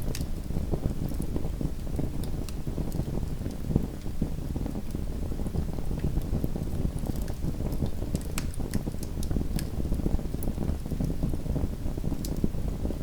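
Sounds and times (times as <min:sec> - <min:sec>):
wood crackling and popping: 0:00.0 - 0:12.6
low rumble of flames: 0:00.0 - 0:13.0.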